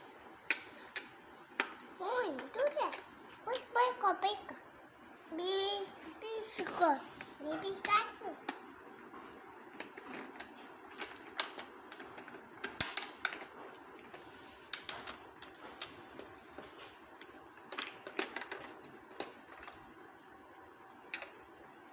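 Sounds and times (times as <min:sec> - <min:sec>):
toy tools clicking and tapping: 0:02.4 - 0:03.8, 0:06.4 - 0:08.6, 0:09.8 - 0:19.8, 0:21.1 - 0:21.4.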